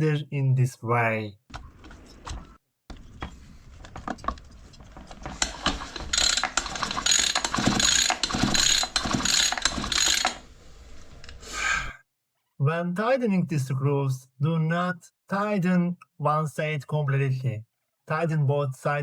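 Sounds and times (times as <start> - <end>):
ratchet wrench clicking rapidly: 6.0 - 10.4.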